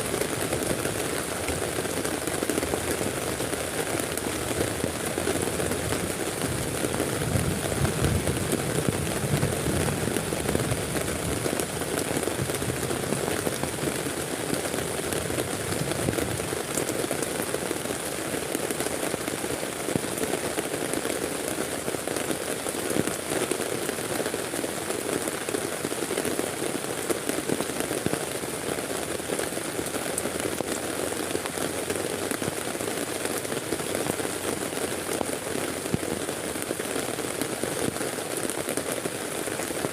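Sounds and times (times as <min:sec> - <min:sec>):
heavy rain on a surface: 0:00.0 - 0:39.9.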